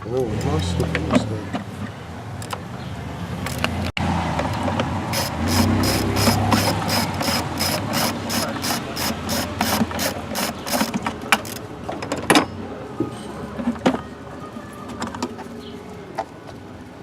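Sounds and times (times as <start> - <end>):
socket ratchet clicking: 5.1 - 11.6.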